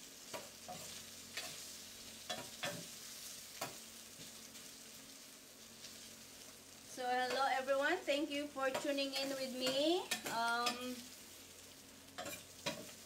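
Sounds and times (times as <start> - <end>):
food sizzling in skillet: 0.0 - 13.0.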